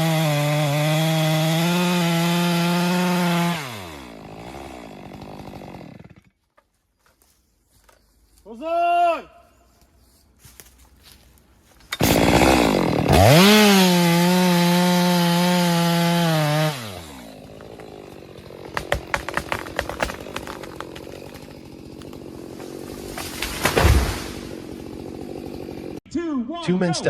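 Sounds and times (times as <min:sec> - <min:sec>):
two-stroke chainsaw revving: 0:00.0 - 0:06.3, 0:12.0 - 0:26.0.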